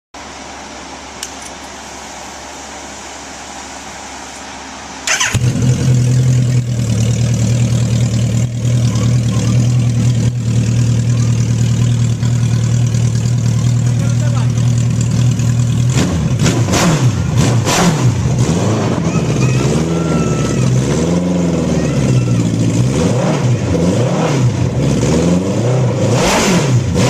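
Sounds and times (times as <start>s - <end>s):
engine cranking and starting: 5.0s - 13.8s
engine running loud: 5.0s - 27.0s.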